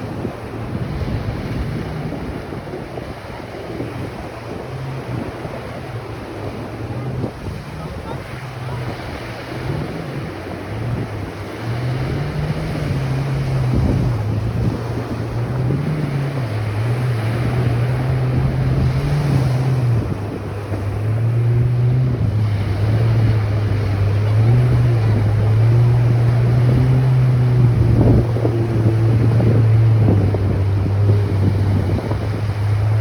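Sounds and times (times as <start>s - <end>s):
low engine drone: 0.0s - 33.0s
ocean surf: 0.0s - 33.0s
wind buffeting microphone: 0.0s - 33.0s.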